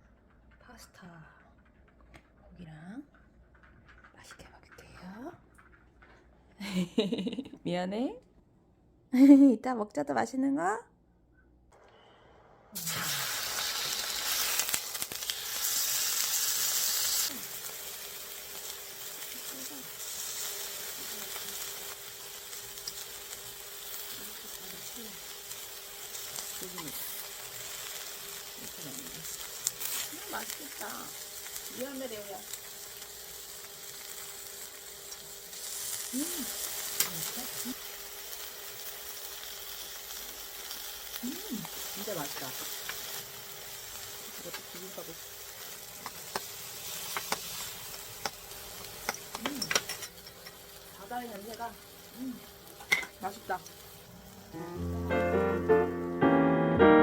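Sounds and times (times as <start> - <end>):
small clicks and pops: 0.0 - 6.3
food sizzling in frying pan: 12.8 - 56.2.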